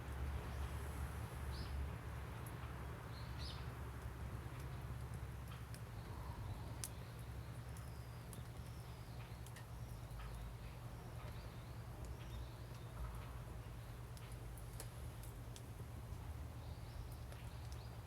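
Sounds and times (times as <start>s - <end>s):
wood fire crackling and popping: 6.8s - 10.2s, 14.0s - 16.2s.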